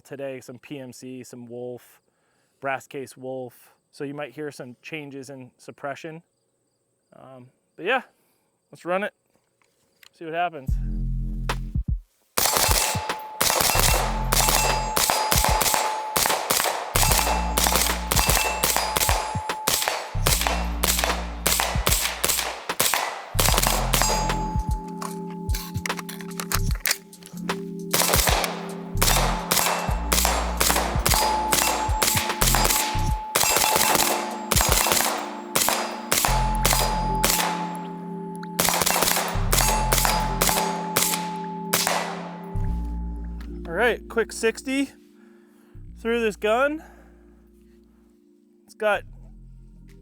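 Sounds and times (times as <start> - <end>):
suppressed rifle shots: 12.4 - 25.2, 25.9 - 37.9, 38.6 - 42.6.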